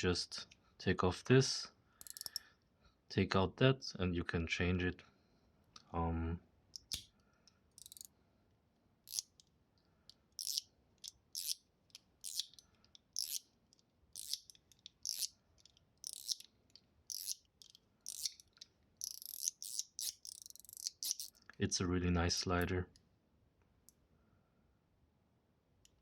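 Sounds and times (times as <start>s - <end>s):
fidget slider clicking: 2.0s - 2.4s, 7.8s - 8.1s, 9.1s - 9.4s, 10.4s - 21.3s.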